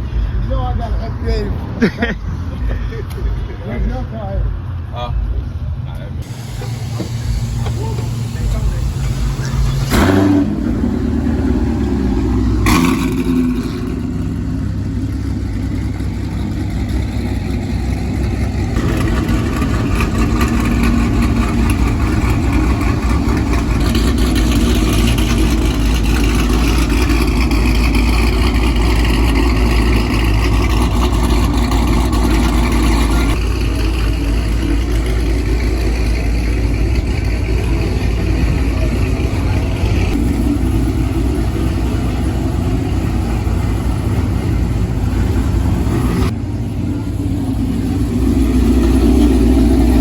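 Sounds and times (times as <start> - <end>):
car engine rumbling: 0.0 - 50.0.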